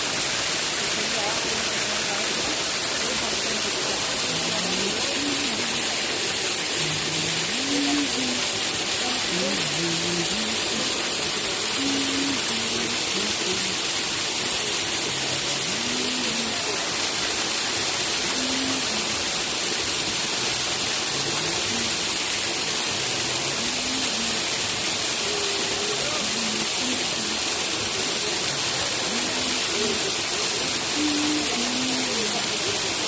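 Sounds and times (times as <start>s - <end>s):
waterfall roaring: 0.0s - 33.0s.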